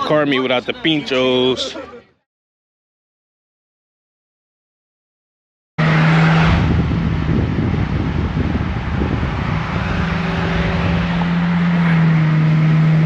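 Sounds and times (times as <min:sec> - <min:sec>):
car engine running: 0:05.8 - 0:13.0.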